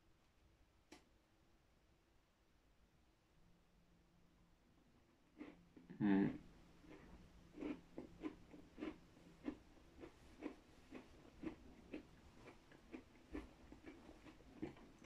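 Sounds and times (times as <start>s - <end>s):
person chewing a cookie: 5.0s - 15.0s.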